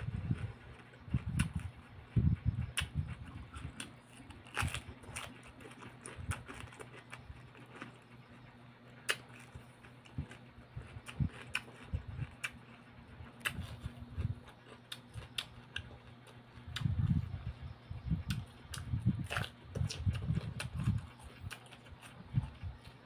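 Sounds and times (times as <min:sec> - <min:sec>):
chewing and crunching cucumber: 0:00.0 - 0:23.0
faint low hum: 0:00.0 - 0:23.0.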